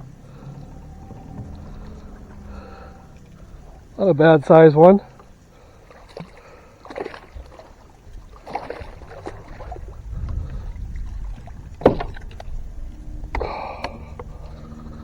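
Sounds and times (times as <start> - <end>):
low rumble: 0.0 - 5.7, 8.8 - 15.0
knocks and rustles on boat: 0.0 - 15.0.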